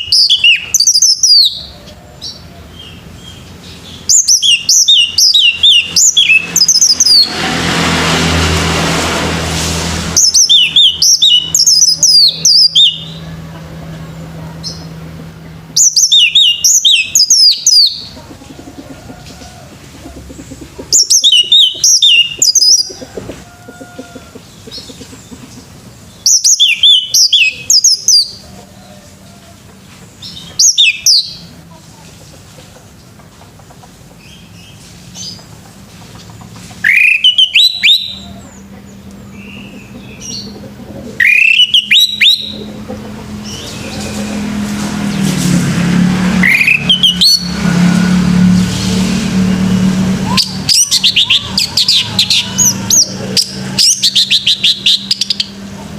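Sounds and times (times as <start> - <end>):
thrush whistled song: 0.0 - 1.7, 3.9 - 7.3, 10.1 - 13.2, 15.8 - 18.1, 21.0 - 23.0, 26.2 - 28.4, 30.4 - 31.5, 36.8 - 38.4, 41.2 - 42.6, 46.4 - 47.7, 49.7 - 55.5.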